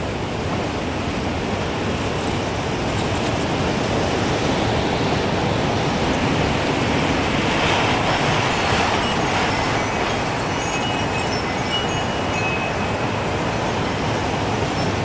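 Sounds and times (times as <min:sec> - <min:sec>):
gusting wind: 0:00.0 - 0:15.0
wind chime tinkling: 0:07.9 - 0:15.0.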